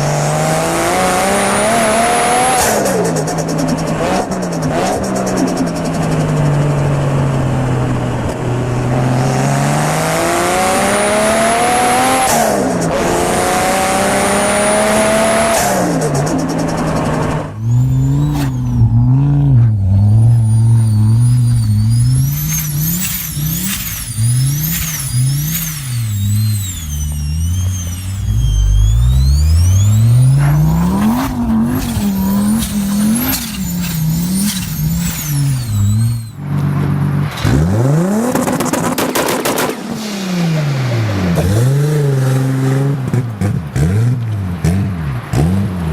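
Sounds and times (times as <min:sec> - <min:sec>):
turbo car engine accelerating: 0:00.0 - 0:45.9
turbo engine revving: 0:00.0 - 0:45.9
turbo whistle: 0:14.3 - 0:36.4.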